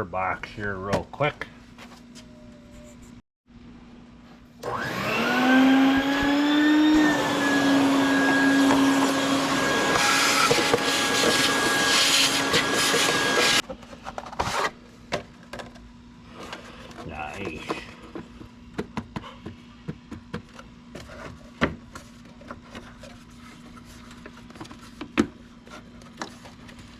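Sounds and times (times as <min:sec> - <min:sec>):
vacuum cleaner motor whine: 0:04.6 - 0:13.6.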